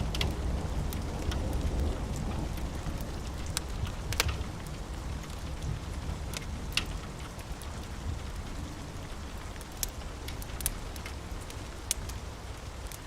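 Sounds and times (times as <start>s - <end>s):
steady rain falling: 0.0s - 13.0s
wood fire crackling: 0.0s - 13.0s.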